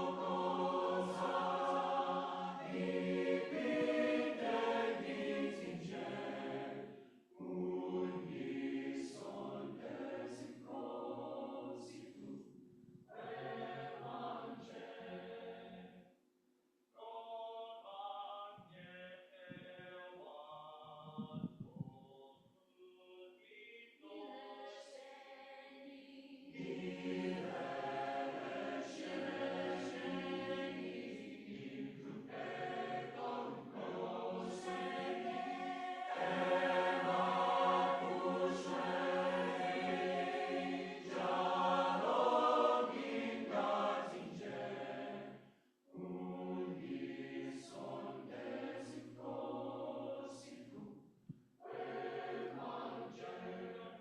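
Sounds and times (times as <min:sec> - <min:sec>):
choir singing call-and-response: 0:00.0 - 0:12.4, 0:13.1 - 0:16.0, 0:22.8 - 0:50.9, 0:51.6 - 0:54.0.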